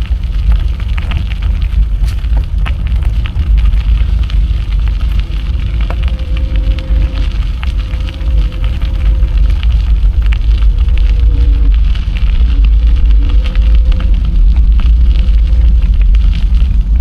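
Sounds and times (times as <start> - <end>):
crackling ticks: 0.0 - 17.0
wind buffeting microphone: 0.0 - 17.0.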